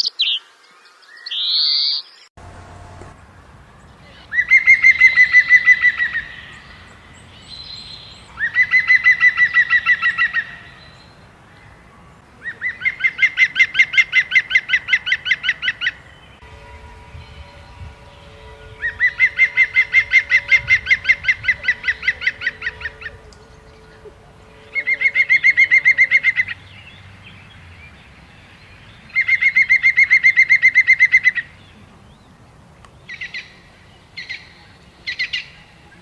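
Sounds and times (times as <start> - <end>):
songbird trilling: 0.0 - 2.3, 17.2 - 32.3
high rising bird call: 3.8 - 26.9.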